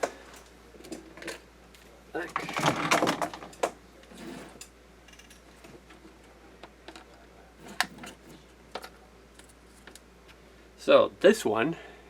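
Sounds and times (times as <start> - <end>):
tools and parts clicking: 2.3 - 5.7.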